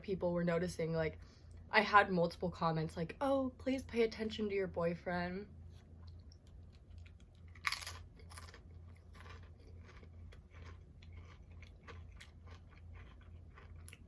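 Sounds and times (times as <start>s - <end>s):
person crunching chips: 6.6s - 14.0s.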